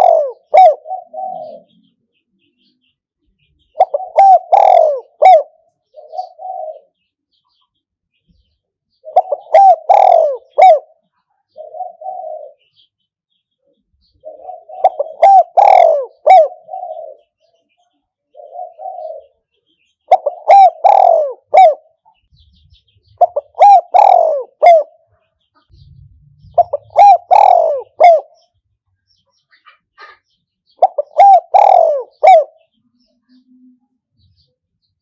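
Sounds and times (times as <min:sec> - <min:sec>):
dove cooing: 0:00.0 - 0:01.9, 0:03.6 - 0:07.0, 0:09.0 - 0:12.9, 0:14.1 - 0:17.4, 0:18.3 - 0:22.1, 0:22.8 - 0:28.6, 0:29.6 - 0:33.8.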